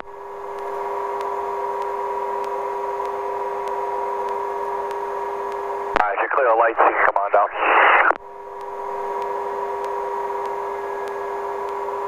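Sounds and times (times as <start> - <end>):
helicopter through radio intercom: 6.0 - 8.2.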